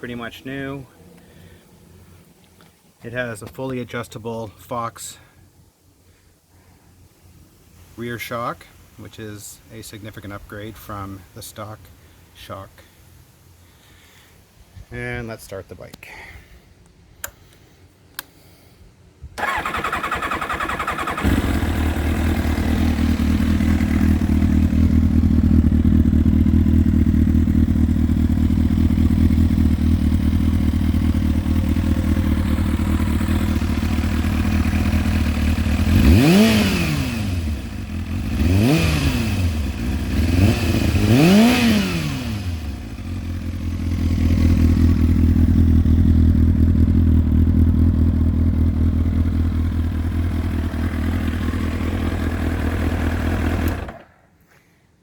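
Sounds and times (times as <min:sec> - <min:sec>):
motorcycle starter cranking: 0:19.4 - 0:23.4, 0:53.2 - 0:54.1
engine revving: 0:19.4 - 0:54.1
motorcycle engine idling: 0:19.4 - 0:54.1.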